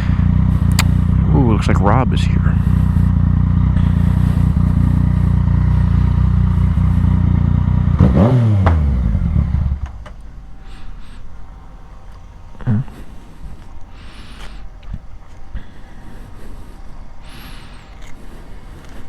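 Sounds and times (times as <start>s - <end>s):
motorcycle engine idling and revving: 0.0s - 10.7s.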